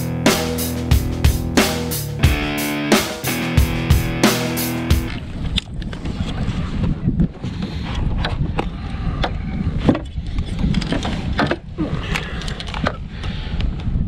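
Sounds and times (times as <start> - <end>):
wind rumbling on microphone: 5.1 - 14.0.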